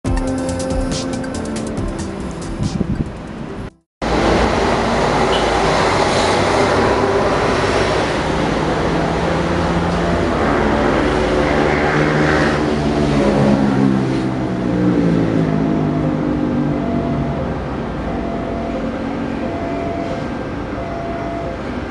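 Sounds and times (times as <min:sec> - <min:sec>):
train rumbling on track: 0:02.1 - 0:19.2
locomotive engine droning: 0:03.2 - 0:21.9.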